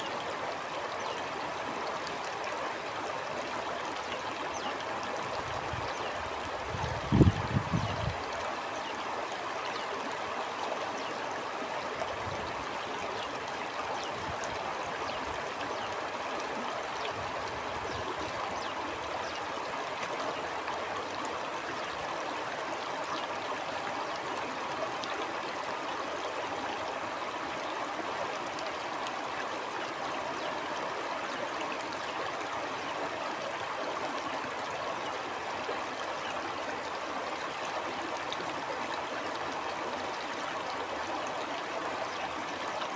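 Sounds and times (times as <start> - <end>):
small stream babbling: 0.0 - 42.9.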